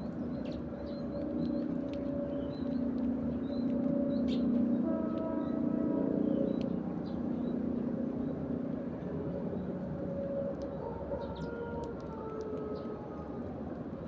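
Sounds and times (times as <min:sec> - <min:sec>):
sparrows chirping: 0:00.0 - 0:04.6, 0:06.2 - 0:08.5, 0:10.7 - 0:11.7
passing vehicle drone: 0:00.0 - 0:14.0
long horn-like tones: 0:03.9 - 0:06.6, 0:09.0 - 0:13.4.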